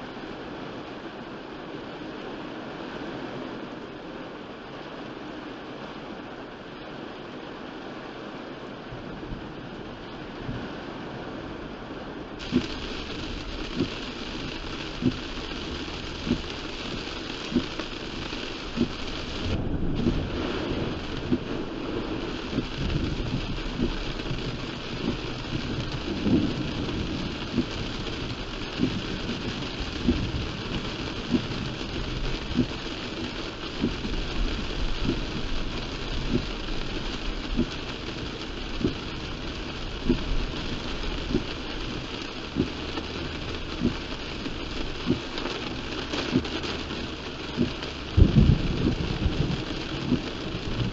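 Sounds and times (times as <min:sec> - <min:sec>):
heavy rain on car: 0:00.0 - 0:50.9
thunder rumbling: 0:12.4 - 0:45.4, 0:46.0 - 0:50.9.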